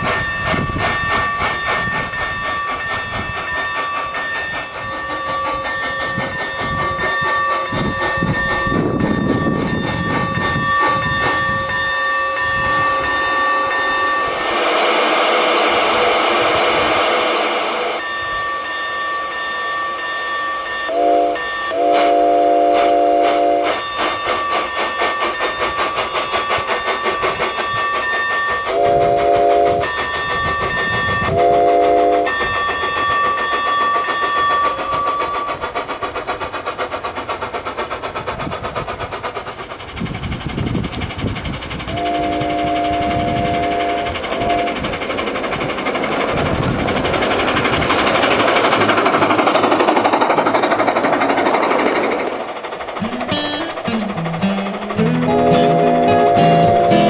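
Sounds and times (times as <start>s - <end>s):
steam locomotive chuffing: 0.0s - 57.0s
high steady ringing tone: 0.2s - 14.5s
chime whistle blasts: 53.0s - 57.0s.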